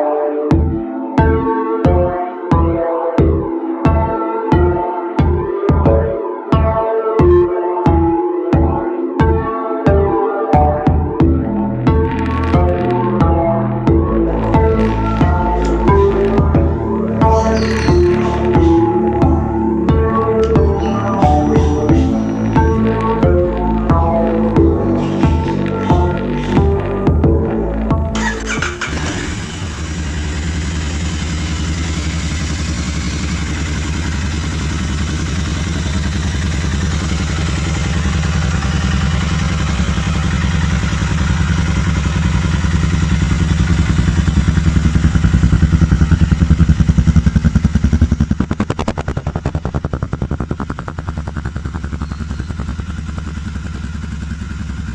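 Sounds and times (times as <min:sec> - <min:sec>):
motorcycle engine running: 0:11.2 - 0:54.9.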